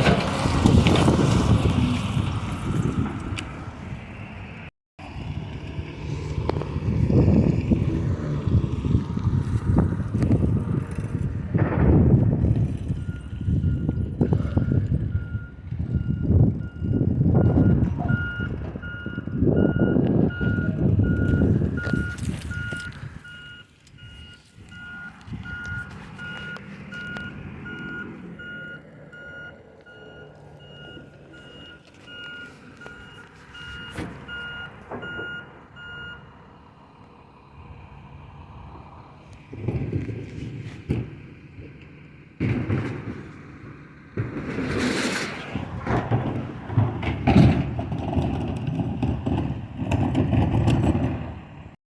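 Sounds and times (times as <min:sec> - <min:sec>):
truck engine rumbling: 0:00.0 - 0:51.8
truck back-up alarm beeping: 0:12.5 - 0:36.9.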